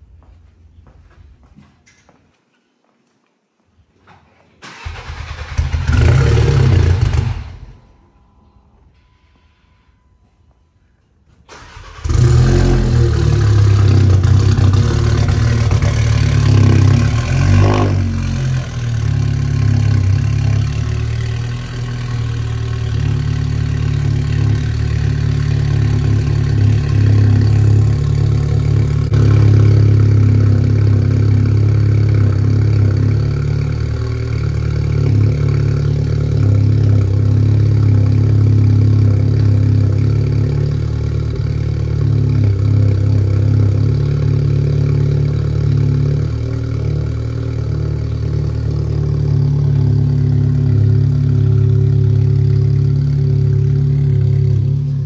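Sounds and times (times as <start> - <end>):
loud deep car engine idling: 18.6 - 55.0.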